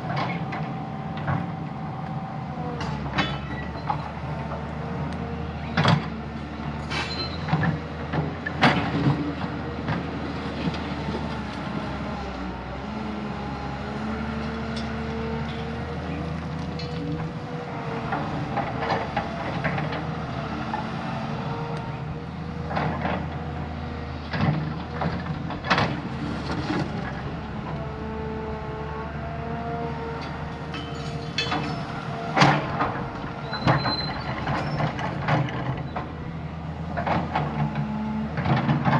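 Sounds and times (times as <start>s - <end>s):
heavy diesel machine engine: 0.0s - 38.9s
sharp metallic clanks: 3.2s - 3.7s, 30.7s - 32.6s.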